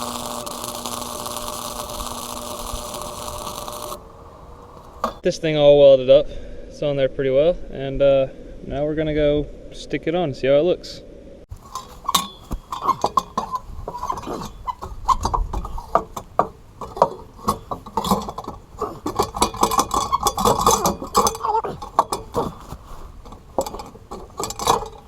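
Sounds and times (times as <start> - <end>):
metal exhaust pipe clanking: 0.0 - 5.2, 11.5 - 25.0.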